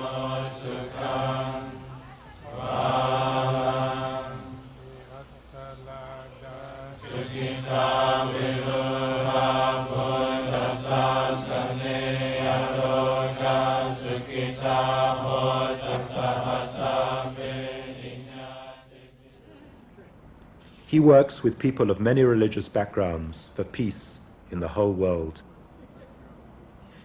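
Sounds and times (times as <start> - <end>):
voices chanting low: 0.0 - 21.6.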